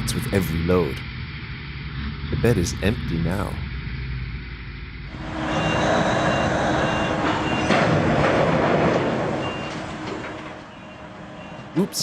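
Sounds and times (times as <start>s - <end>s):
heavy truck engine running: 0.0s - 12.0s
reversing alarm beeping: 5.0s - 12.0s.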